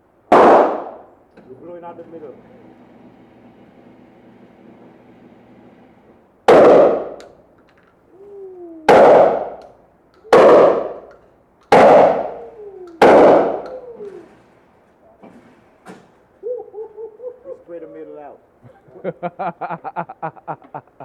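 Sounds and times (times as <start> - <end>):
gunshots with echo: 0.3 - 1.1, 6.5 - 7.2, 8.9 - 9.6, 10.3 - 11.1, 11.7 - 14.3.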